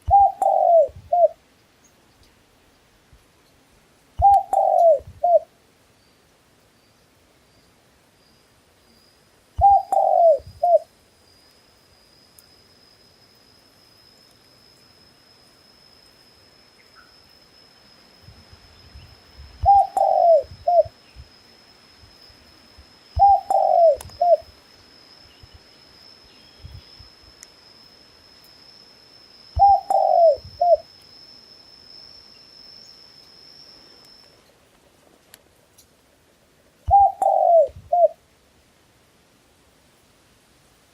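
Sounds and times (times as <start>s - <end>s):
dove cooing: 0.0s - 1.4s, 4.2s - 5.5s, 9.6s - 10.9s, 19.6s - 20.9s, 23.2s - 24.5s, 29.6s - 30.8s, 36.9s - 38.2s.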